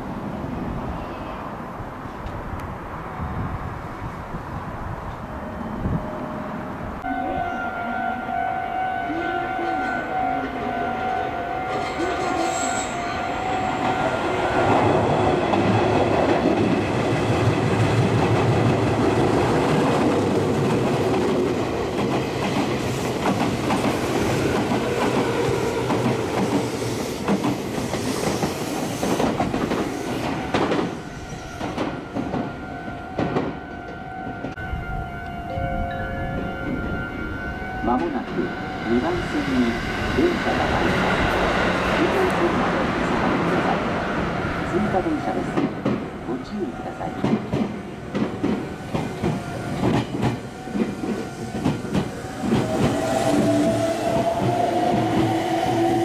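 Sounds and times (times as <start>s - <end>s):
electric train passing at speed: 0.0s - 56.0s
wheels clacking over rail joints: 47.1s - 55.8s.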